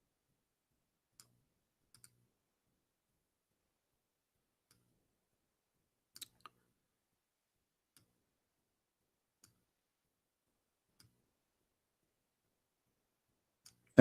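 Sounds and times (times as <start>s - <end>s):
computer mouse clicks: 1.2s - 2.2s, 6.2s - 6.6s, 11.0s - 11.2s.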